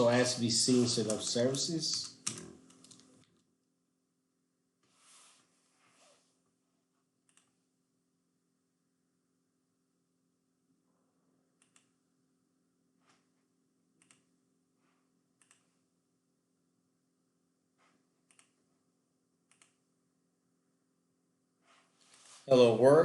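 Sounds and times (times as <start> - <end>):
computer keys clicking: 1.0 - 3.3, 18.3 - 18.6.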